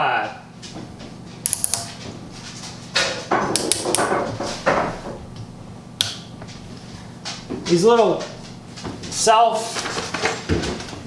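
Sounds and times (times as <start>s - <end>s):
sharp click: 1.4s - 2.0s, 6.0s - 6.3s.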